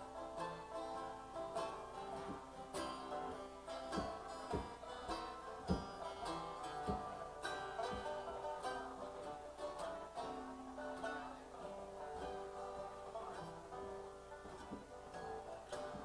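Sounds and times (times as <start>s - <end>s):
plucked string instruments: 0.0s - 16.0s
low thumps: 2.2s - 9.0s.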